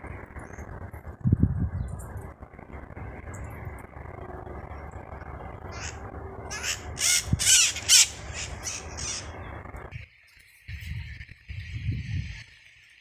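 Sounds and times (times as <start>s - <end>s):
low background noise: 1.9s - 10.4s
bird squawking: 5.7s - 9.5s.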